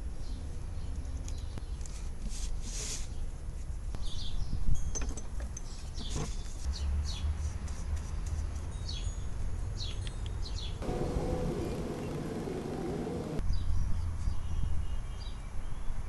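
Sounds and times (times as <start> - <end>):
small birds chirping: 9.9 - 13.4
low rumble: 10.8 - 13.4.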